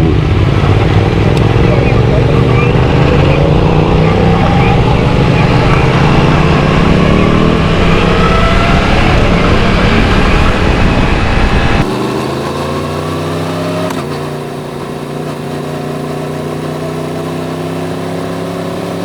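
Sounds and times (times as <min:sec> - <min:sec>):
wind rush: 0:00.0 - 0:12.0
motorcycle engine accelerating: 0:00.0 - 0:19.0
click: 0:13.9 - 0:14.2.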